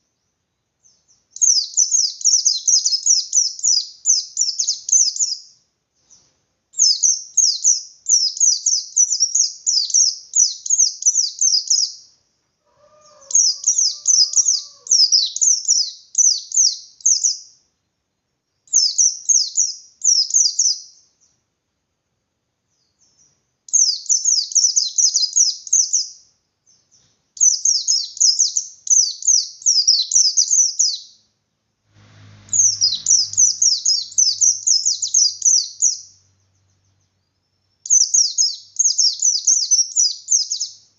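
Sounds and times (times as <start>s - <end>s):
white-eye twittering song: 0.0s - 12.1s, 12.8s - 17.6s, 18.7s - 21.1s, 22.8s - 31.2s, 32.4s - 40.9s
faint low hum: 31.1s - 38.9s.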